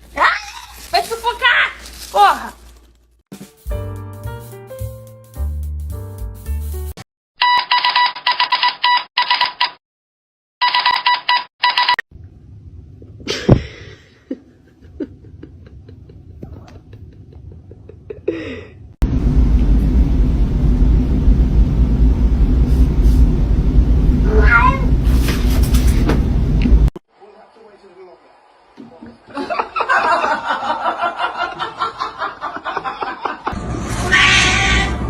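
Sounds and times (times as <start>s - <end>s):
short electronic beeping: 10.6s - 12.0s
low rumble: 19.0s - 26.9s
cat meowing: 24.2s - 25.0s, 34.0s - 35.0s.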